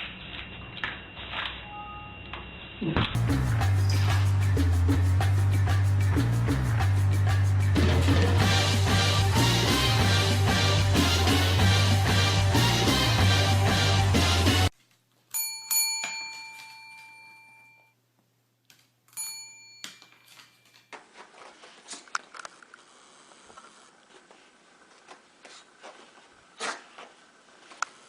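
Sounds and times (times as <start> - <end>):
doorbell chime: 15.4 - 18.0, 19.2 - 20.7.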